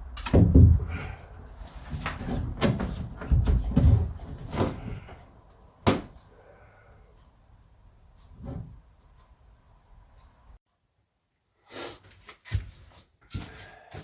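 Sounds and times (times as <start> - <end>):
knocks and thuds: 0.2 - 1.2, 1.9 - 5.1, 5.8 - 6.2.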